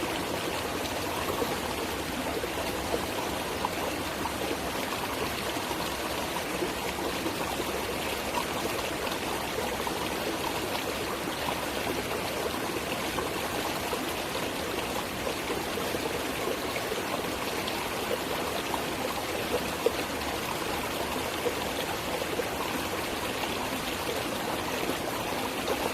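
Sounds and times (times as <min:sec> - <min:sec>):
stream water flowing: 0:00.0 - 0:25.9.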